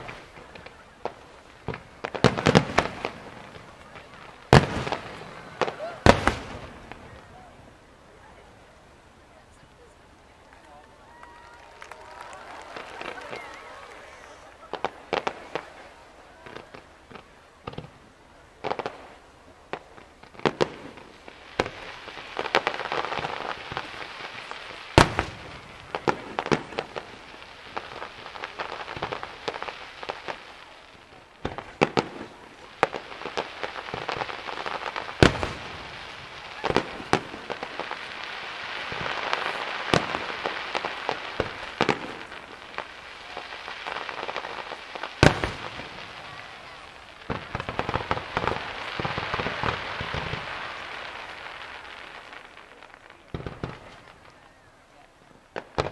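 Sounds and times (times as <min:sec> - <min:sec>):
firework shells bursting with bangs: 0:00.0 - 0:07.1, 0:31.4 - 0:52.5
crackling firework hiss: 0:00.0 - 0:55.9.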